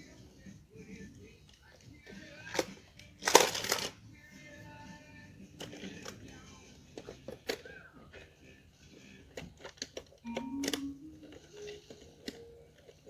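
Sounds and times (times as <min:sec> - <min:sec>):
plastic toy pieces clicking: 0:02.5 - 0:04.0.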